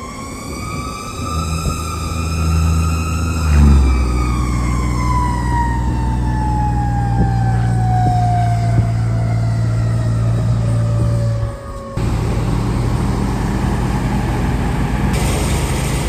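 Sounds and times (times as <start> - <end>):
fire engine siren wailing: 0.0 - 16.0
truck engine running: 4.0 - 16.0.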